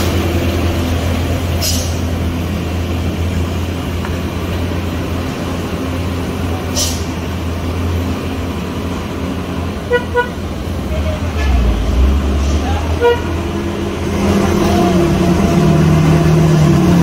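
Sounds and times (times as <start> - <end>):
heavy vehicle engine droning: 0.0 - 17.0
air brake hiss: 1.6 - 2.0, 6.7 - 7.2
horn toots: 9.8 - 10.5, 12.4 - 13.6.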